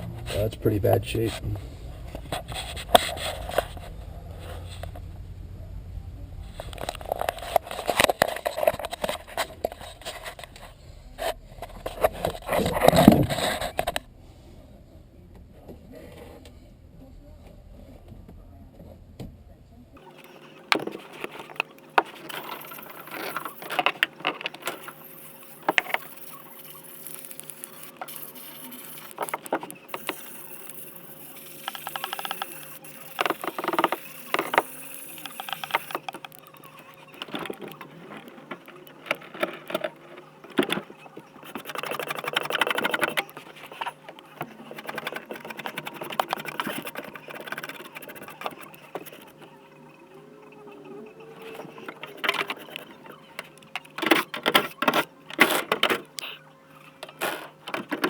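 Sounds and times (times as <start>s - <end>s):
faint steady hum: 0.0s - 58.0s
hands and tools handling metal parts: 20.0s - 49.4s.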